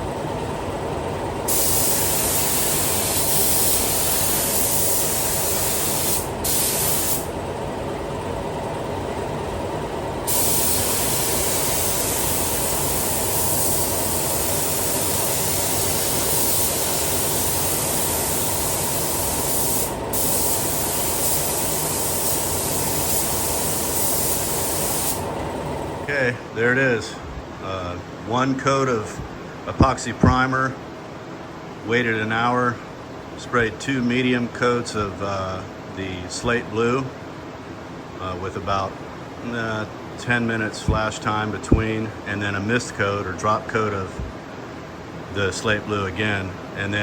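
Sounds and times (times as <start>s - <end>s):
steady low hum: 0.0s - 47.0s
paint spray gun hissing: 1.5s - 7.3s, 10.3s - 25.4s.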